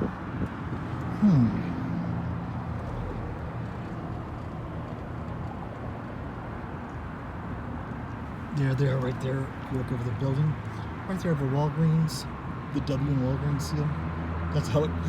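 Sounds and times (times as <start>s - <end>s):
car engine humming: 0.0s - 15.0s
short falling vocal sound: 1.1s - 1.8s.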